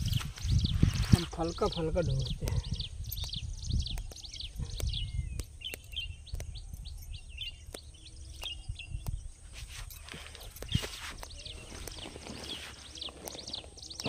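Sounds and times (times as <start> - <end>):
small birds chirping: 0.0 - 14.0
sharp clicks: 2.3 - 9.3.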